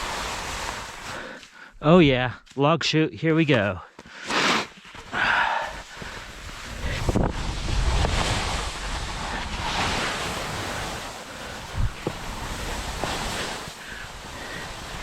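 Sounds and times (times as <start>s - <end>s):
skis sliding over snow: 0.0s - 1.5s, 4.1s - 15.0s
wind buffeting microphone: 6.3s - 13.0s.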